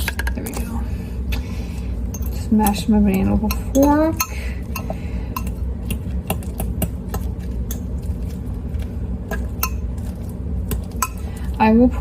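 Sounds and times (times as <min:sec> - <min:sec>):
steady low hum: 0:00.0 - 0:12.0
fork clinking against a bowl: 0:09.3 - 0:09.9, 0:10.9 - 0:11.3.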